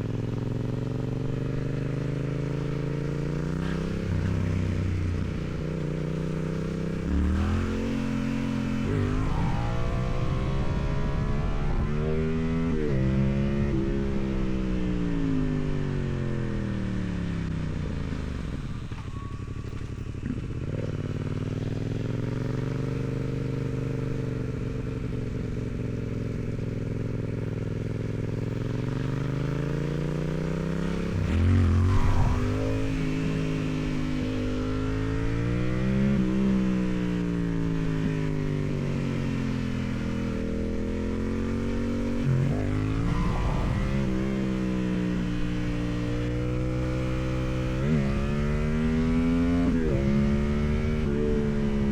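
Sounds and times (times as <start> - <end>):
motorcycle engine revving: 0.0 - 51.9
wind rushing over microphone: 30.9 - 36.6, 41.9 - 46.4.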